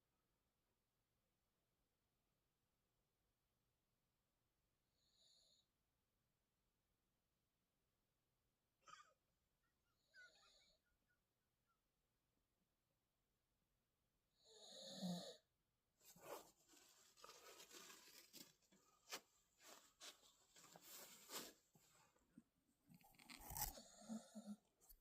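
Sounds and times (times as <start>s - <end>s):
puppy wheezing snore: 8.8s - 9.2s, 14.4s - 15.4s.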